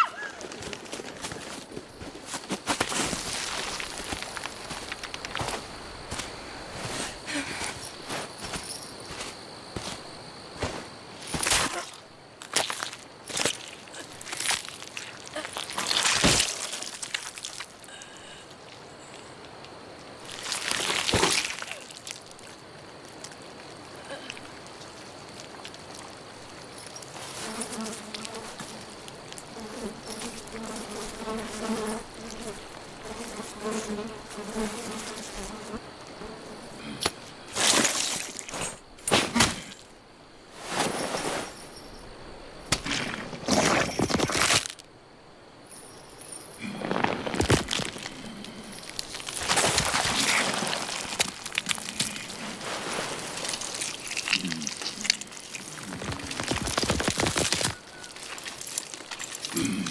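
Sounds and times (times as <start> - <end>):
outdoor ambience: 0.0 - 59.9
insect buzzing: 26.8 - 38.9.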